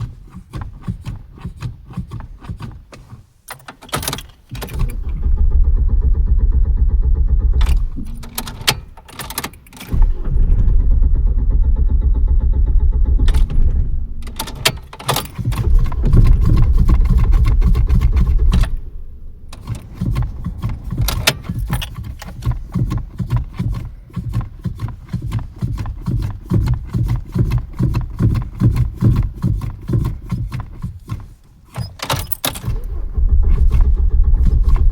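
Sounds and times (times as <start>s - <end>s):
car engine cranking: 0.0s - 34.9s
engine pulsing unevenly: 4.6s - 9.0s, 9.9s - 30.8s, 32.6s - 34.9s.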